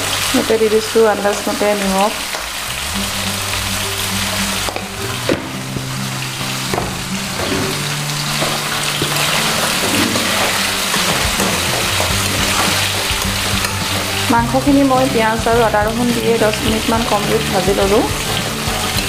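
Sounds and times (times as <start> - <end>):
food sizzling in hot oil: 0.0 - 19.0
pan knocks and scrapes: 6.7 - 7.8, 8.4 - 14.2.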